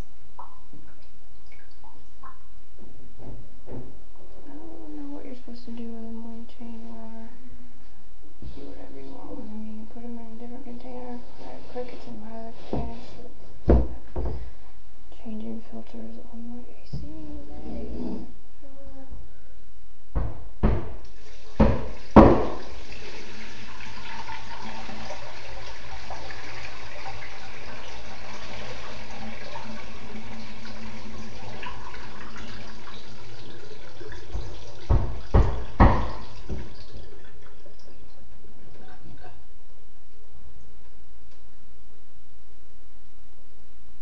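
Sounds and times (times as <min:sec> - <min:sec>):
water pouring: 0:21.1 - 0:38.4
container knocks: 0:21.6 - 0:22.7.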